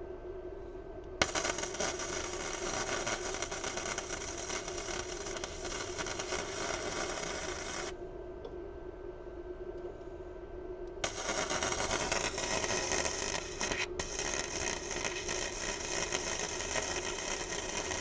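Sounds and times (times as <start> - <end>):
rotary tool grinding steel: 1.2 - 7.9, 11.0 - 18.0.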